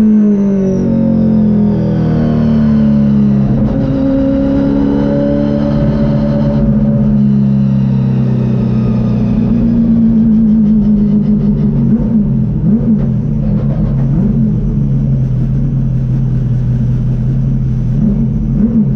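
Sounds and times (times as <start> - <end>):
car engine from inside cabin: 0.0 - 18.9.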